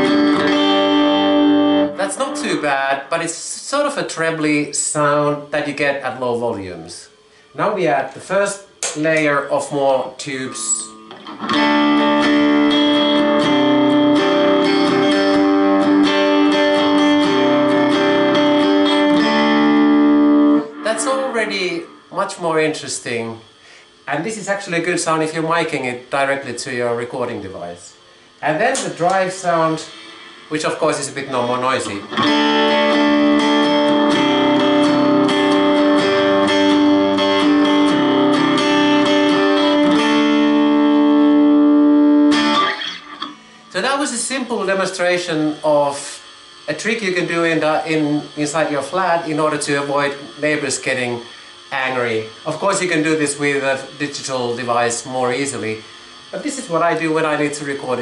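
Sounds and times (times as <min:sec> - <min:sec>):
electric guitar strumming chords: 0:00.0 - 0:03.1, 0:08.6 - 0:24.0, 0:28.1 - 0:44.8.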